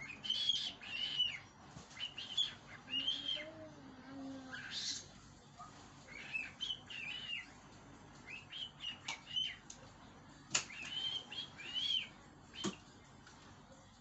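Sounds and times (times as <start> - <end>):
cockatiel whistled chirps: 10.7 - 12.8.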